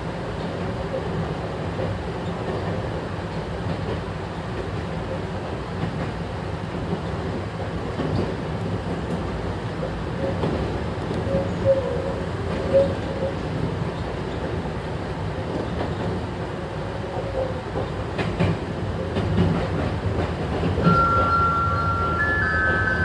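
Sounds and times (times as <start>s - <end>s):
electric train rumbling: 0.0s - 23.0s
rail-joint clicks: 0.4s - 16.4s, 17.1s - 23.0s
high steady tones: 20.9s - 23.0s.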